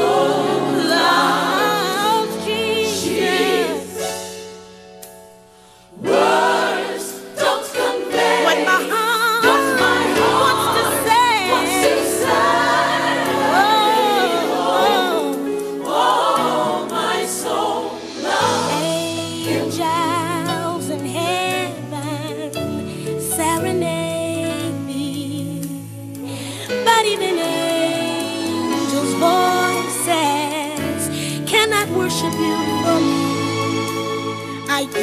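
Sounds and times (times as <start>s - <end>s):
gospel choir singing: 0.0s - 4.4s, 5.9s - 21.7s, 27.1s - 30.6s, 32.1s - 35.0s
instrumental backing: 0.0s - 35.0s.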